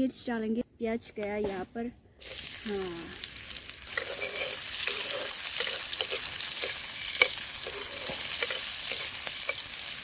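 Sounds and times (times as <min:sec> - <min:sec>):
onions sizzling in hot oil: 0:02.2 - 0:10.0
ladle clink: 0:03.9 - 0:09.7
metal ladle scraping pan: 0:03.9 - 0:09.9.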